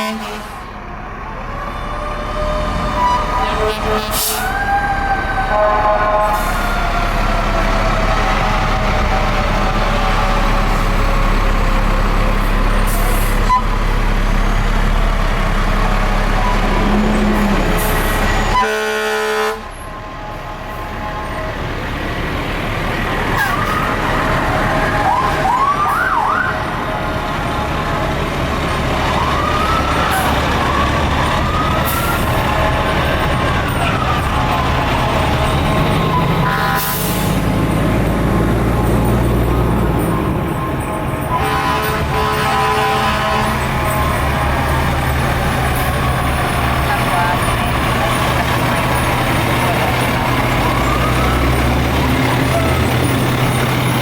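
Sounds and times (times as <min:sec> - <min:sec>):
air horn blast: 0:00.0 - 0:00.8, 0:03.0 - 0:04.7, 0:05.4 - 0:06.8, 0:16.8 - 0:21.3, 0:36.4 - 0:37.4, 0:41.3 - 0:43.9
fire truck engine running: 0:00.0 - 0:54.0
sirens wailing: 0:00.0 - 0:54.0.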